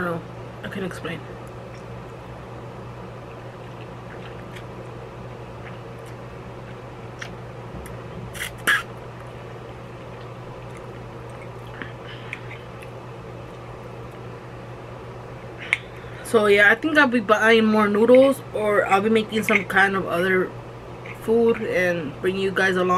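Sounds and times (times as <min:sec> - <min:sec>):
low hum: 0:00.0 - 0:22.9
mouth smack: 0:07.2 - 0:08.9.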